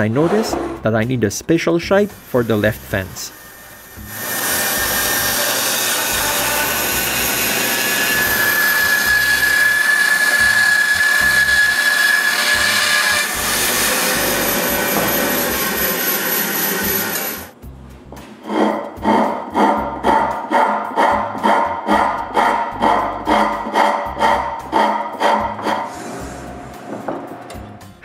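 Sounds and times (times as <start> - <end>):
power tool shaping wood: 2.1 - 17.6, 18.5 - 27.2.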